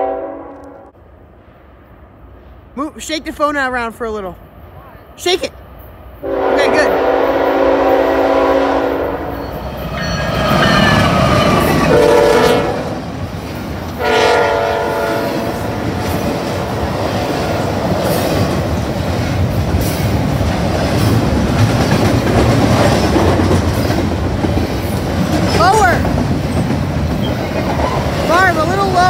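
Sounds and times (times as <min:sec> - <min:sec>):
train horn blasts: 0:00.0 - 0:01.0, 0:06.2 - 0:13.0, 0:14.0 - 0:15.8
train wheels rumbling on rails: 0:06.2 - 0:29.0.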